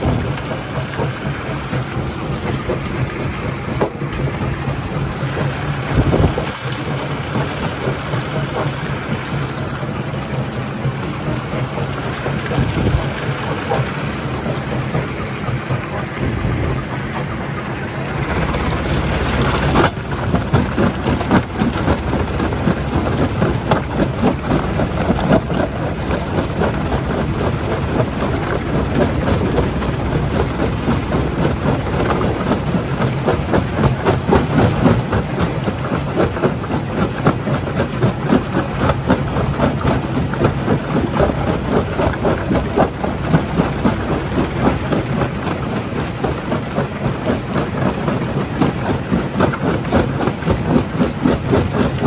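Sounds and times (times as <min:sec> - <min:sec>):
stone crusher droning: 0:00.0 - 0:52.0
rushing surge: 0:14.4 - 0:34.4.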